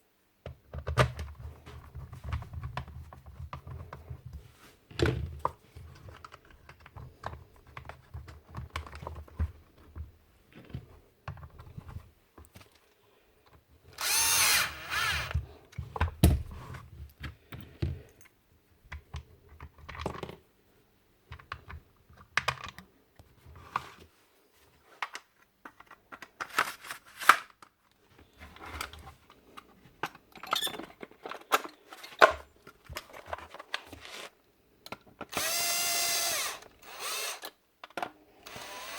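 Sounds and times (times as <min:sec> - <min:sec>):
small electric motor whirring: 0:14.0 - 0:15.4, 0:35.3 - 0:37.5, 0:38.4 - 0:38.9
clicks and knocks of parts handled: 0:24.9 - 0:35.6, 0:37.4 - 0:38.6.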